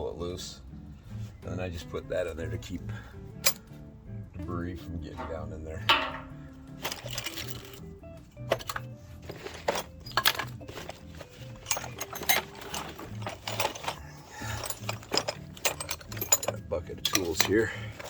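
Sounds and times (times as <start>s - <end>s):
background music: 0.0s - 18.0s
metal hand tools clinking: 3.4s - 3.6s, 5.2s - 18.0s.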